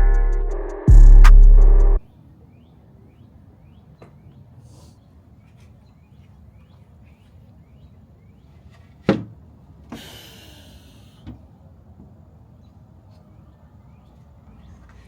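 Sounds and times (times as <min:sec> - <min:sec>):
hiss: 0:09.9 - 0:11.2.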